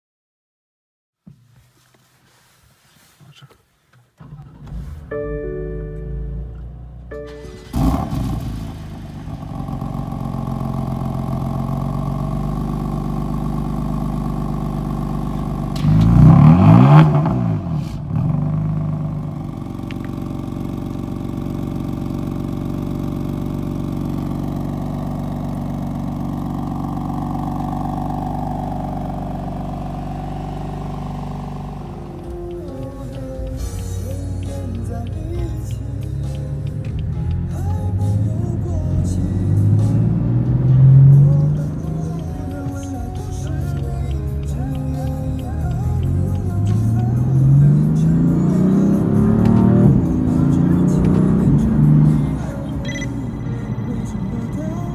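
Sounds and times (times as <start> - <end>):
car engine starting: 3.2 - 54.9
car engine idling: 4.1 - 54.9
car engine revving: 6.2 - 54.9.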